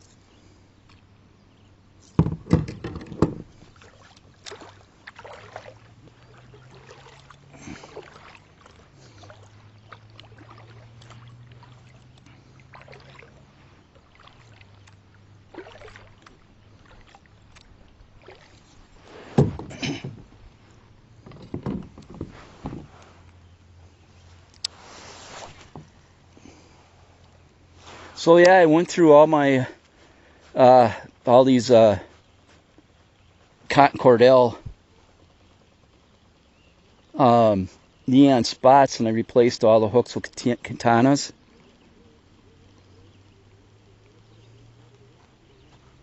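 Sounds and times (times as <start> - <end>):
gear knocking against kayak hull: 2.2 - 3.6, 19.3 - 20.4, 21.2 - 23.0
faint clicks: 14.7 - 15.0, 24.5 - 24.8.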